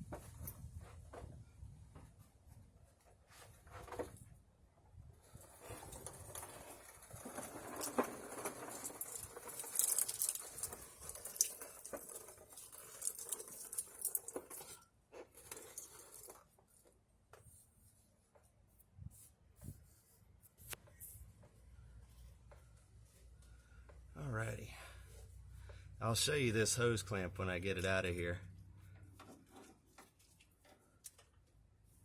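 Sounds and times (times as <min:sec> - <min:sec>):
pliers scraping and rustling: 0:07.2 - 0:16.5.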